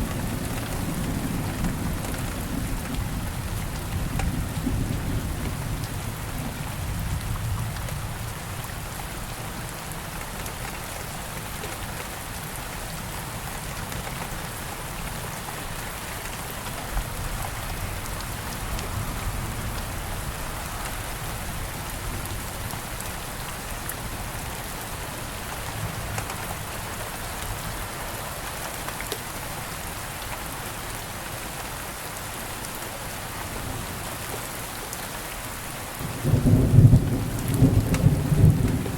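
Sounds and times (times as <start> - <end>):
steady rain falling: 0.0 - 38.9
distant thunder rumble: 36.0 - 38.9.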